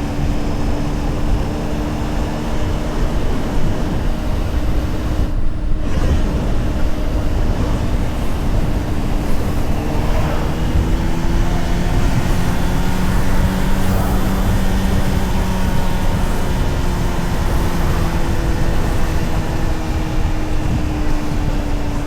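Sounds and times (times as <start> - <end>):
motorcycle engine at speed: 0.0 - 22.0
wind rush: 0.0 - 22.0.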